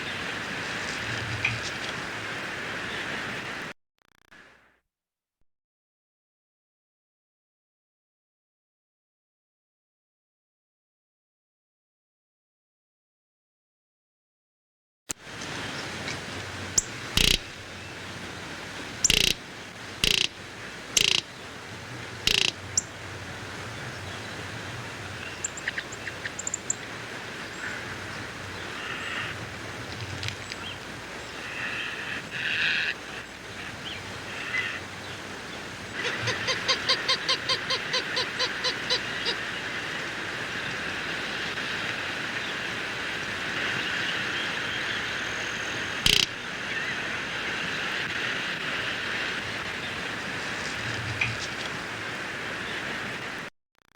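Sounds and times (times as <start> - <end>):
bird calls: 16.7 - 18.1, 19.0 - 20.4, 21.0 - 21.6, 22.2 - 23.1, 25.0 - 26.8, 27.5 - 39.6, 43.8 - 47.1
sharp click: 17.2 - 17.4, 46.1 - 46.3.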